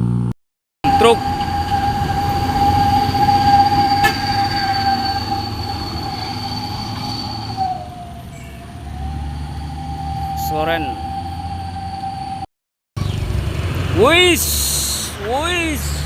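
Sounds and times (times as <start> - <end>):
high whine: 0.0 - 12.5
truck engine rumble: 0.0 - 16.0.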